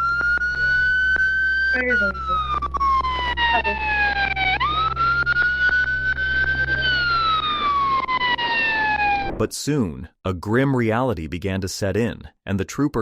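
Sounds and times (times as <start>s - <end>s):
emergency siren wailing: 0.0s - 9.4s
low hum: 0.0s - 9.5s.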